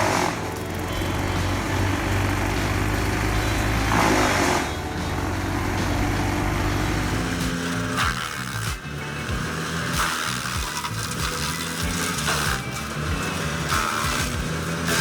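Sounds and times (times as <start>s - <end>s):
loud rushing noise: 0.0s - 10.0s
wood chipper engine running: 0.0s - 15.0s.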